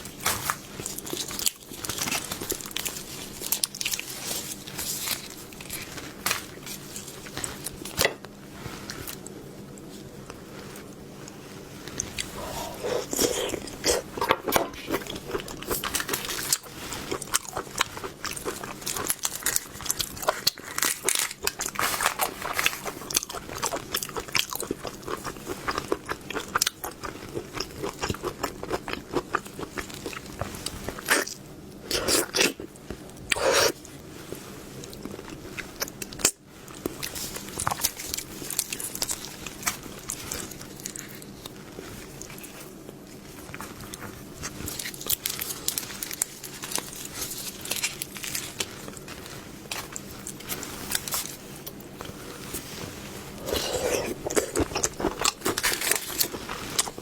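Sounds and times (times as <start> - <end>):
wet chewing: 53.4 - 57.0.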